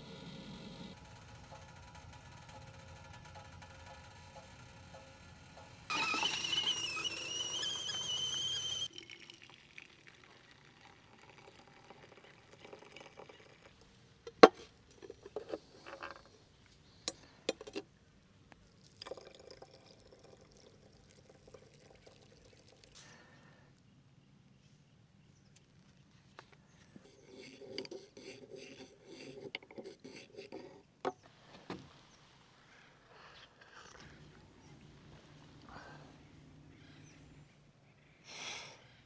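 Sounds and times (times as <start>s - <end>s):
sharp clicks and knocks: 0.9s - 6.2s
liquid pouring into container: 5.9s - 13.9s, 18.8s - 23.0s.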